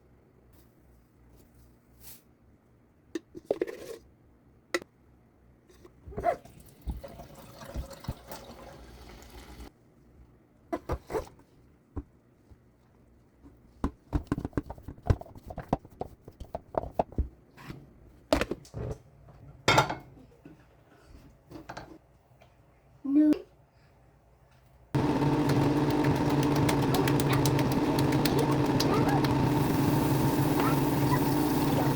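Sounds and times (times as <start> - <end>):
water running: 6.5 - 9.7, 25.0 - 31.9.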